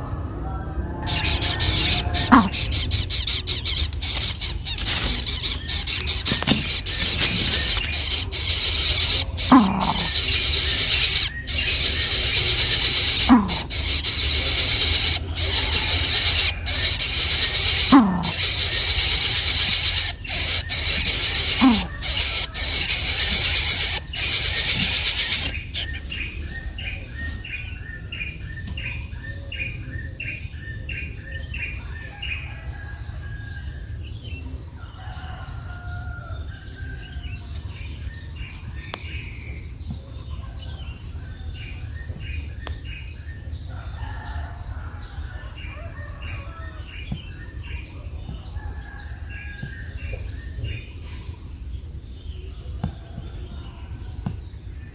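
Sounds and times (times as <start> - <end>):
bird chirping: 0.0 - 32.1
loud steady hiss: 6.6 - 25.7.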